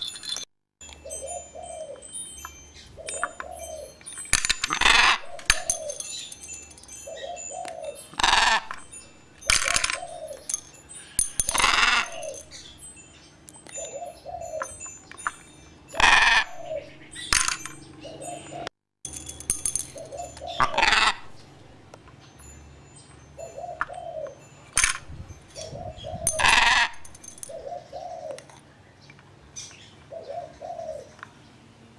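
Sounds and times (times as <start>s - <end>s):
doves cooing: 1.0s - 2.2s, 3.0s - 6.3s, 7.0s - 12.7s, 13.7s - 15.0s, 15.9s - 18.7s, 19.7s - 21.6s, 23.4s - 28.7s, 30.0s - 31.3s
bird harsh screeching calls: 4.8s - 6.4s, 7.1s - 8.9s, 9.5s - 12.8s, 15.9s - 17.4s, 19.9s - 21.5s, 25.6s - 28.2s.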